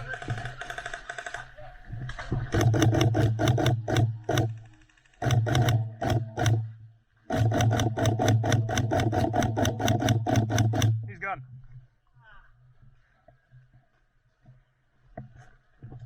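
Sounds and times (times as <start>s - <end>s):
gearbox motor hum: 0.0s - 11.4s
airsoft gun firing full-auto: 2.5s - 11.1s.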